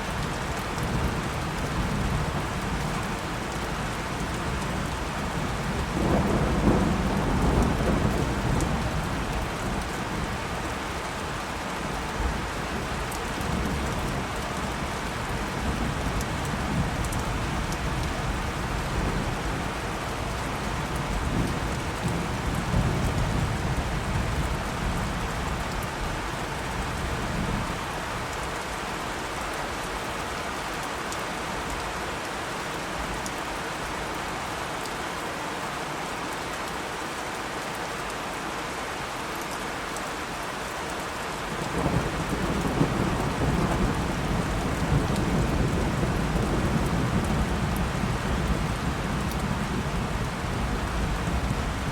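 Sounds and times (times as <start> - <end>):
steady rain: 0.0 - 51.9
rolling thunder: 41.7 - 51.9.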